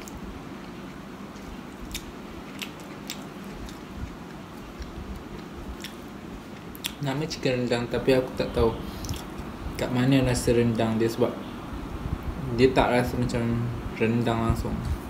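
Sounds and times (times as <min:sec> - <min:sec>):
chewing sandwich: 0:00.0 - 0:07.1, 0:08.9 - 0:09.5
low background rumble: 0:00.0 - 0:15.0.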